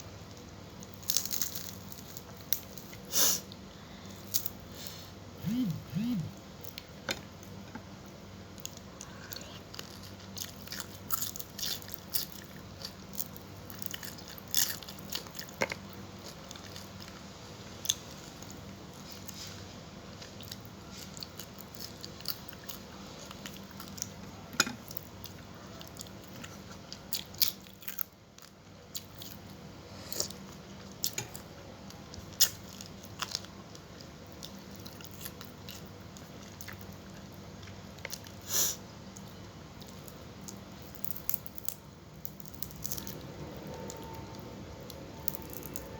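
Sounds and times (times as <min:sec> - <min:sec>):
faint steady hum: 0:00.0 - 0:45.9
person chewing crunchy food: 0:08.5 - 0:19.5, 0:32.1 - 0:38.4, 0:39.7 - 0:43.3, 0:44.9 - 0:45.9.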